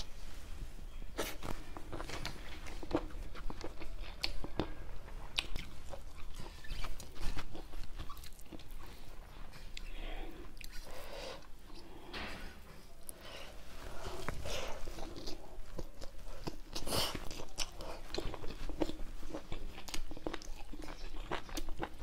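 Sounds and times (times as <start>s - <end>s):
person chewing and lip smacking: 1.9s - 9.0s, 9.6s - 11.9s, 14.3s - 22.0s.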